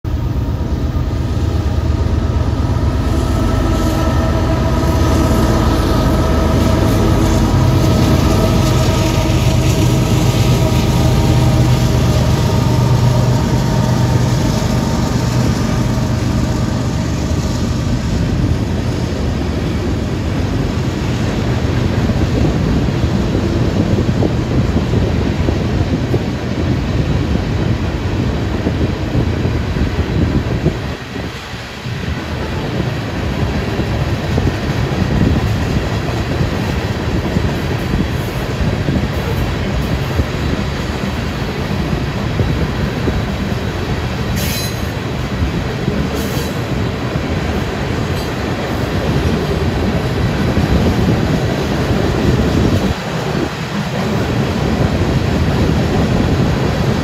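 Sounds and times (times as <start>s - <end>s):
diesel locomotive engines droning: 0.0s - 57.0s.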